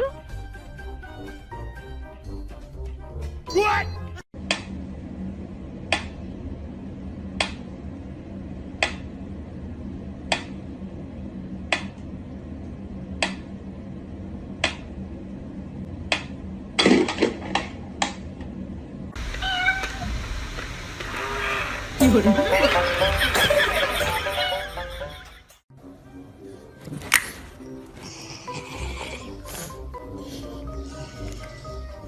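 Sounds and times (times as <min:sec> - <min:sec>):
steady low hum: 0:04.4 - 0:25.4
cat mewing: 0:19.3 - 0:20.2, 0:21.1 - 0:21.8.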